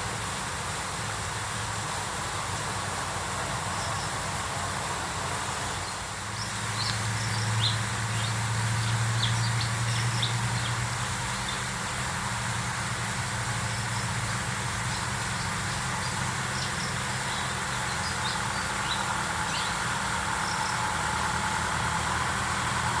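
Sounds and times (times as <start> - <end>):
low engine-like hum: 0.0 - 23.0
steady hiss: 0.0 - 23.0
small birds chirping: 5.8 - 21.4.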